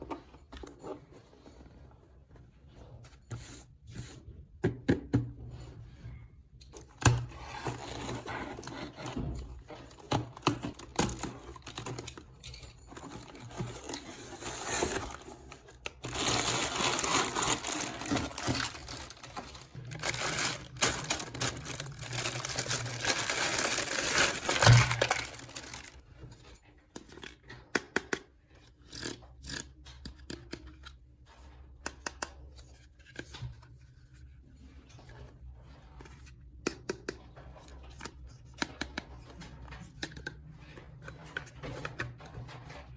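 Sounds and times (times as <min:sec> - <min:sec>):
packaging tearing and crinkling: 0:13.1 - 0:26.0.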